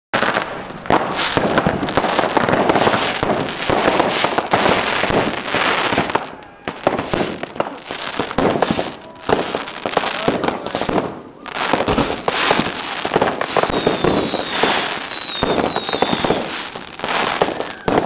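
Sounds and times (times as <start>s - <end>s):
fireworks crackling and banging: 0.2s - 18.0s.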